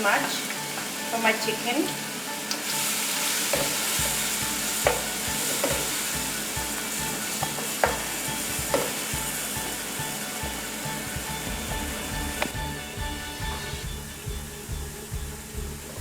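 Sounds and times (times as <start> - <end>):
onions sizzling in oil: 0.0 - 16.0
spoon knocking against pan: 3.5 - 4.2, 4.8 - 6.0, 7.4 - 9.3.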